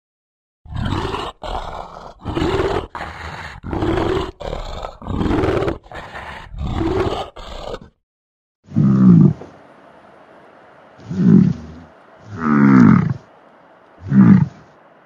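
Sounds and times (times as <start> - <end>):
bear cubs nursing hum: 8.7 - 15.0.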